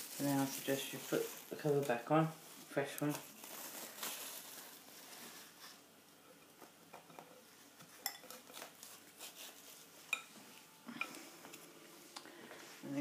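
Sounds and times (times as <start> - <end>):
bowl and utensils clinking: 6.4 - 8.6.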